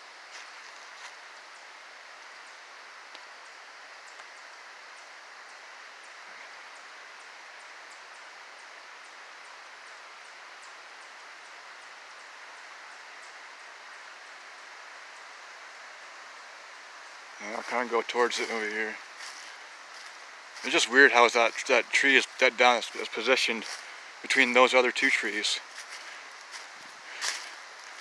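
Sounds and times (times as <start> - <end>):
faint light ticks: 3.1 - 3.3, 4.0 - 4.4
stream water rushing: 16.5 - 28.0.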